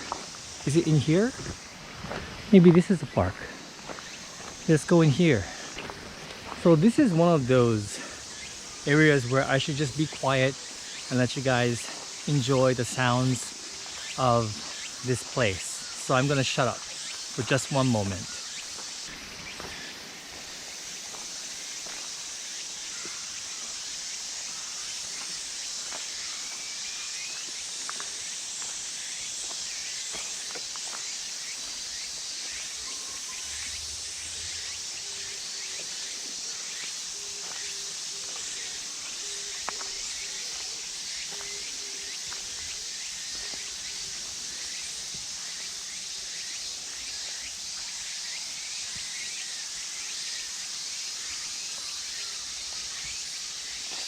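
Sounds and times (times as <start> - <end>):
high-pitched insect chorus: 0.0 - 54.0
faint bird chirps: 31.4 - 44.1.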